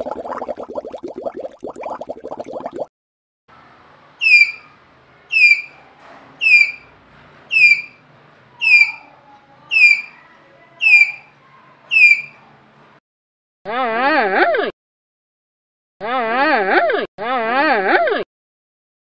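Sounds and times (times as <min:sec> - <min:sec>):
tapir squealing: 0:04.2 - 0:12.5.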